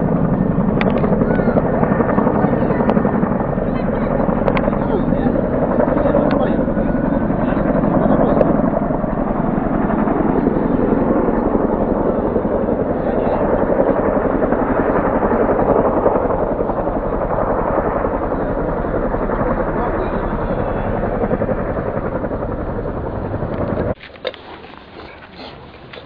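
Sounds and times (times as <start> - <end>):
loud steady mechanical noise: 0.0 - 10.5.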